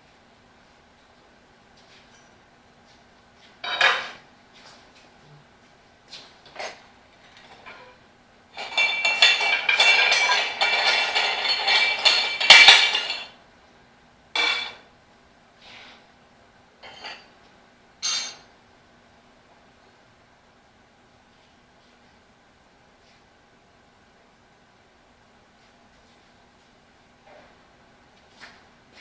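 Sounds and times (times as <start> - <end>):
metal bar clanking on wheel rim: 8.6 - 13.3, 14.4 - 14.8.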